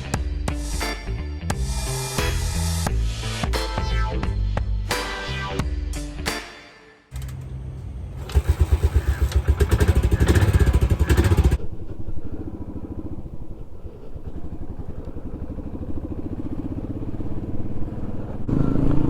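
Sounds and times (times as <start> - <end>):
motorcycle engine thumping: 7.1 - 11.6.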